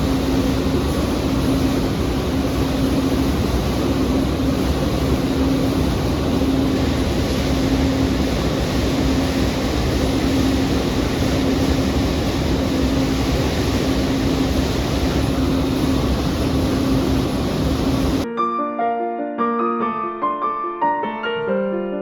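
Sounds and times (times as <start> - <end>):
piano music: 18.2 - 22.0.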